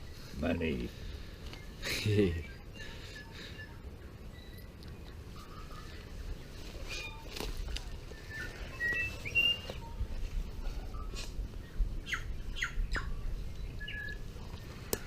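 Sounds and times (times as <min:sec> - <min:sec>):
whistled bird notes: 0:06.8 - 0:07.3, 0:08.1 - 0:10.0, 0:12.0 - 0:14.2
downward-sweeping bird chirps: 0:08.1 - 0:14.3.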